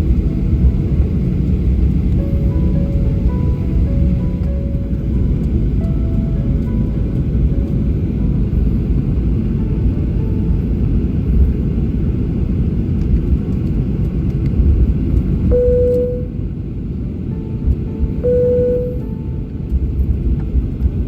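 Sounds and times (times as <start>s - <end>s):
aircraft cabin engine rumble: 0.0s - 21.0s
short single tone: 15.5s - 16.4s, 18.2s - 19.3s.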